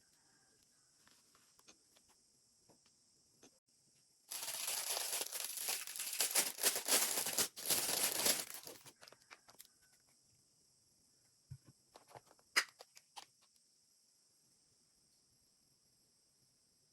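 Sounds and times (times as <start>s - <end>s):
packaging wrap crinkling: 4.3s - 9.5s.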